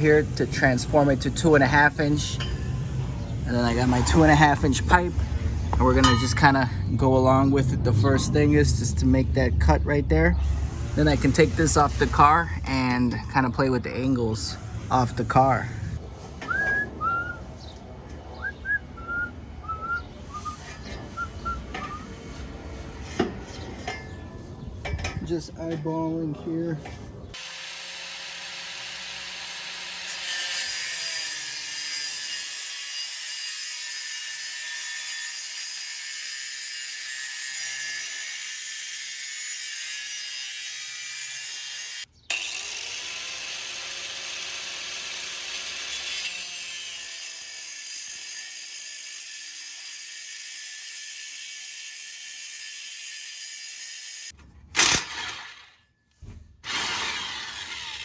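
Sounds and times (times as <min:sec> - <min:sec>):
power tool cutting metal pipe: 0:10.4 - 0:13.0, 0:27.4 - 0:55.8, 0:56.6 - 0:58.0.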